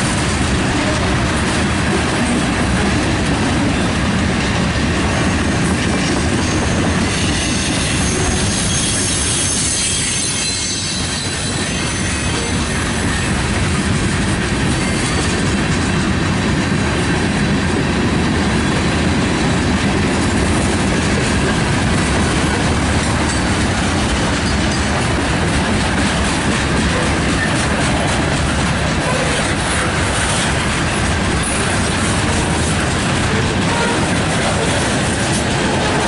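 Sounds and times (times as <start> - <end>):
freight train wheels rumbling on rail: 0.0 - 36.0
wheels clacking over rail joints: 10.8 - 36.0.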